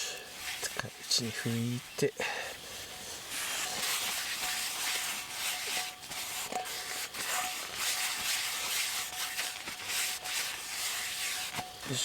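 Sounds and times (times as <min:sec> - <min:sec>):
wiping metal cookware: 0:00.0 - 0:02.0, 0:03.0 - 0:12.0.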